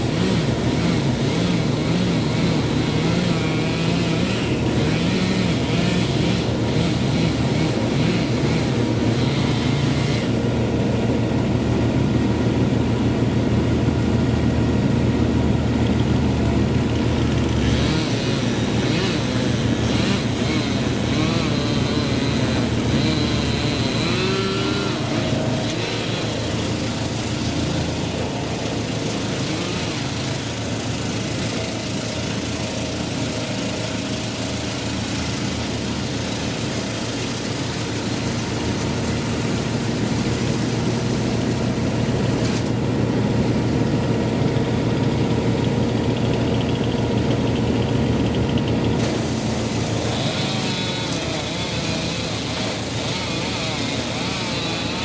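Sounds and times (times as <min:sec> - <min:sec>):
engine running under load: 0:00.0 - 0:55.0.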